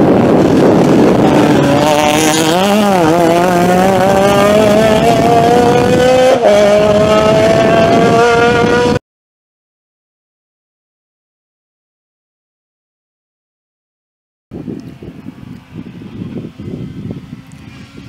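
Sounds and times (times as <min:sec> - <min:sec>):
rally car engine revving: 0:00.0 - 0:09.0.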